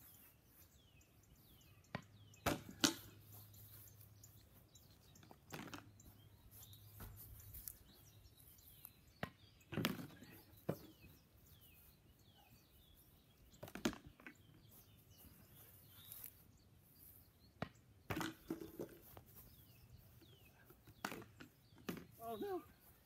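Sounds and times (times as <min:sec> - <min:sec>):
faint bird chirps: 0:03.2 - 0:13.7, 0:14.3 - 0:17.6, 0:18.4 - 0:23.0.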